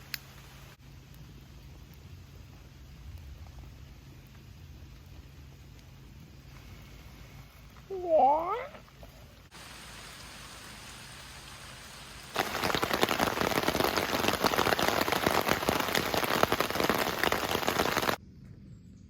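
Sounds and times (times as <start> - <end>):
rain striking a surface: 0.0 - 5.8, 9.5 - 18.2.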